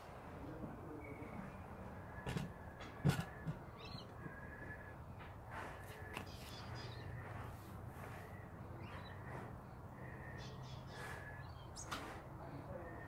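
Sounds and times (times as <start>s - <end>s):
soft puffs of breath: 4.2s - 12.3s
bird calling: 5.7s - 12.1s.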